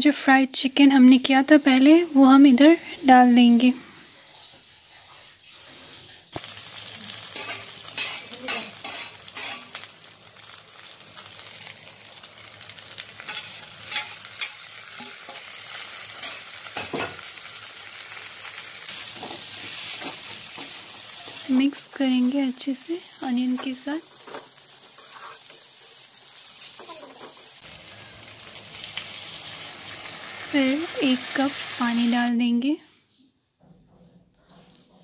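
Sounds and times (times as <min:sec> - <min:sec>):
chicken sizzling in hot oil: 0:03.3 - 0:32.3
spatula scraping pan: 0:07.3 - 0:09.8, 0:13.2 - 0:17.3, 0:23.0 - 0:26.1.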